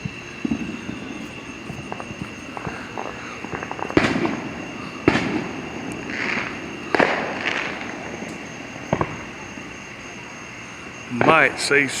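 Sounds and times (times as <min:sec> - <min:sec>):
fireworks pops and crackles: 0:00.0 - 0:09.5, 0:11.1 - 0:12.0
fireworks loud bangs: 0:00.0 - 0:09.8, 0:11.1 - 0:12.0.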